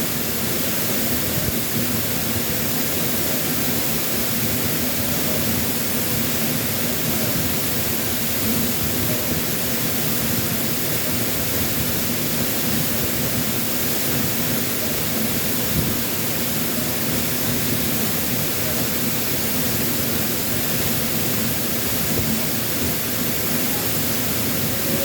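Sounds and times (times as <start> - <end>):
waterfall rushing: 13.9 - 25.0.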